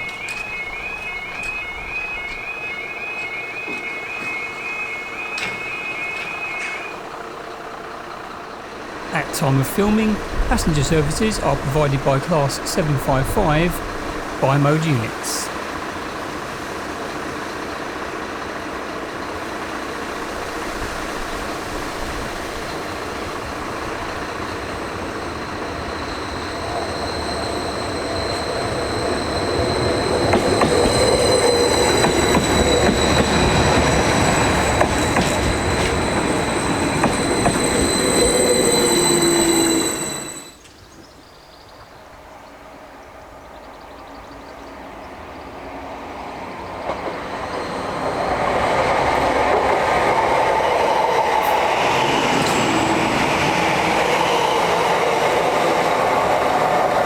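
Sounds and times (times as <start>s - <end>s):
high steady squeal: 0.0s - 7.1s, 24.3s - 40.7s
train rumble: 0.0s - 41.1s, 41.8s - 57.0s.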